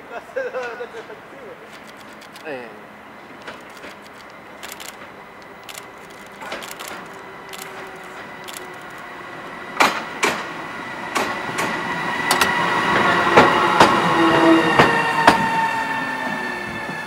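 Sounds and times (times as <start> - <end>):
locomotive high whine: 1.6 - 17.0
train wheels clacking on rail joints: 3.3 - 9.1, 9.8 - 10.5, 11.1 - 15.5.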